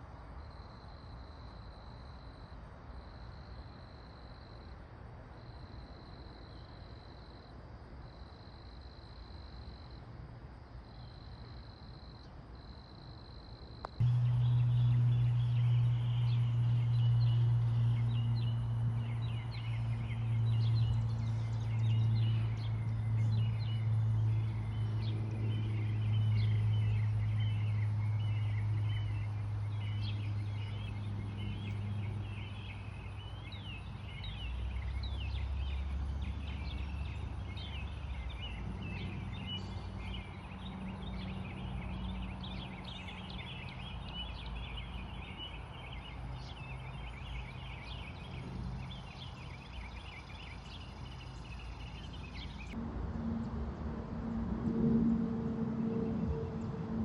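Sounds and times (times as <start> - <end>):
low steady hum: 0.0 - 57.0
steady low tone: 13.8 - 42.2, 50.9 - 57.0
birds chirping: 13.9 - 53.6.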